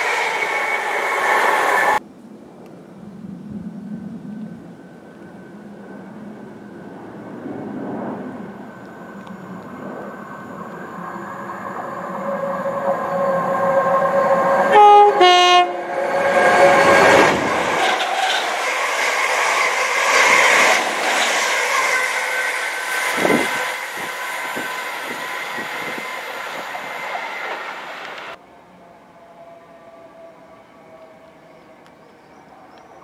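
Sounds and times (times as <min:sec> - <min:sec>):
train rushing past: 0:00.0 - 0:02.0, 0:04.8 - 0:33.0
rail clicks: 0:08.7 - 0:28.4
train two-tone horn: 0:11.9 - 0:18.6.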